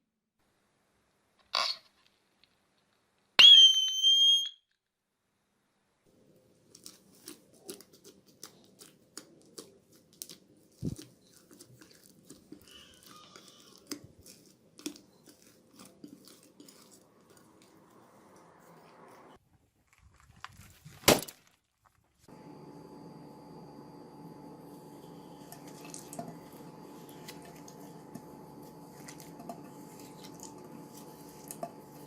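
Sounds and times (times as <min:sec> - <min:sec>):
slime crackling: 0:06.7 - 0:19.4.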